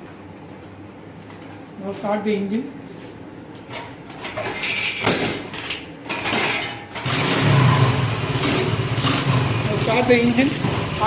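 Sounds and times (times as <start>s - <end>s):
small petrol engine starting: 7.0s - 11.0s.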